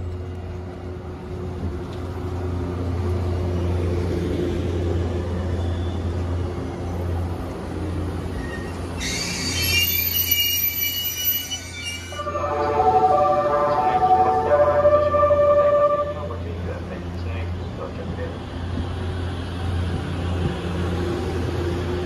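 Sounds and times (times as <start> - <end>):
electric train running noise: 0.2 - 22.0
high-pitched squeal: 8.3 - 16.3.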